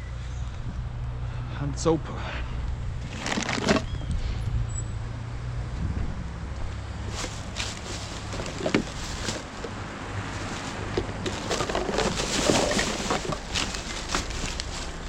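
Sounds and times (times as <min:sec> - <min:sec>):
plastic bottles clattering: 0:03.0 - 0:03.9, 0:07.1 - 0:15.0
rustling of rubbish bags: 0:03.0 - 0:03.9, 0:07.0 - 0:15.0.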